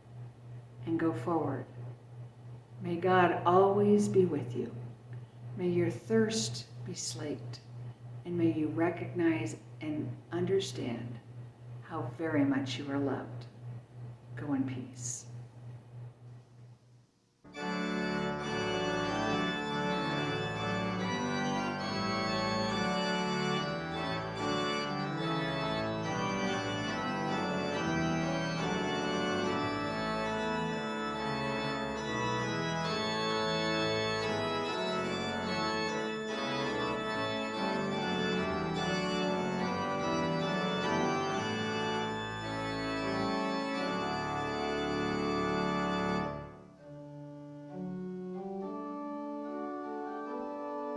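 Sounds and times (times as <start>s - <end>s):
organ playing sustained chords: 17.4s - 50.9s.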